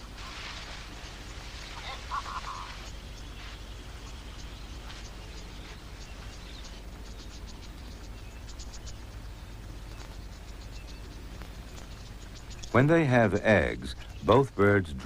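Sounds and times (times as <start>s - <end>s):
steady hiss: 0.0s - 6.3s
low hum: 0.0s - 15.0s
high clicking chirps: 4.0s - 14.3s.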